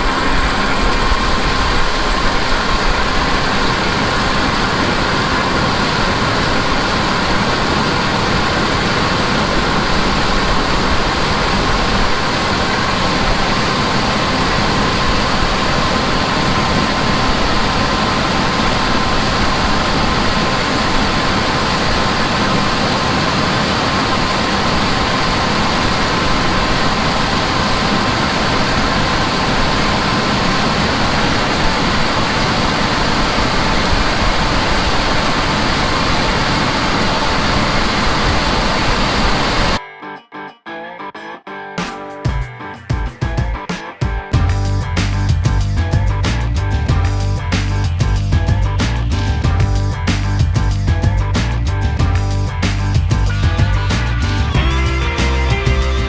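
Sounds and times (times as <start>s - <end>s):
heavy farm machinery drone: 0.0s - 39.8s, 44.3s - 56.0s
steady machine whine: 0.0s - 39.8s, 42.9s - 56.0s.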